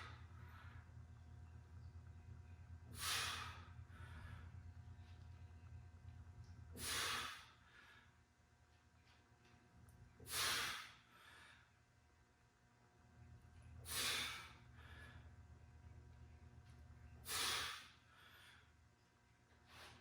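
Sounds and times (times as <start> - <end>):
low steady hum: 0.0 - 20.0
man breathing out hard: 2.9 - 4.5, 6.8 - 8.0, 10.3 - 11.7, 13.9 - 15.2, 17.2 - 18.7.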